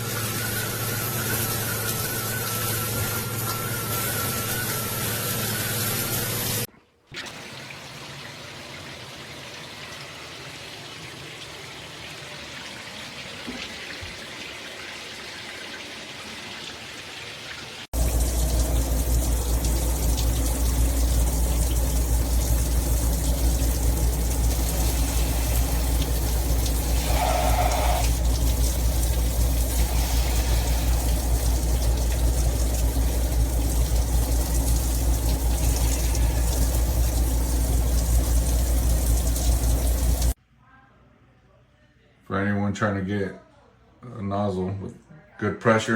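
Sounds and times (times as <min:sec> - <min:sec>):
shower head spraying water: 0:00.0 - 0:06.7, 0:18.0 - 0:40.4.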